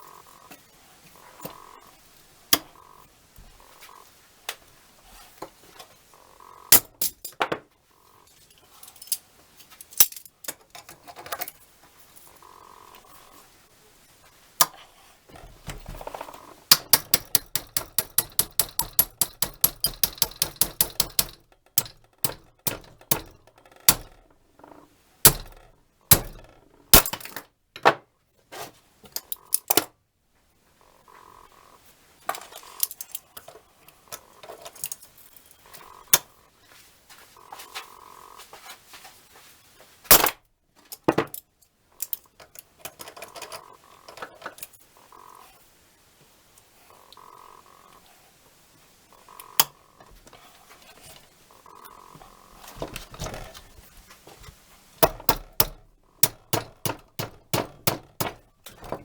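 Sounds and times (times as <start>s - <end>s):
metal tools clicking and clinking: 6.7s - 7.6s, 8.3s - 11.6s, 15.4s - 24.4s, 25.2s - 27.9s, 29.1s - 29.9s, 32.3s - 36.2s, 40.1s - 44.8s, 55.0s - 59.0s
wrench knocks: 15.7s - 24.3s, 25.3s - 27.2s, 55.0s - 59.0s.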